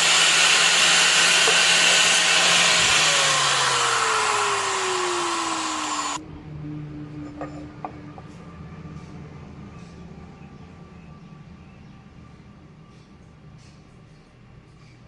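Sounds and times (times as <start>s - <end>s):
electric grinder grinding steel: 0.0s - 6.2s
grinder motor running: 0.0s - 6.2s.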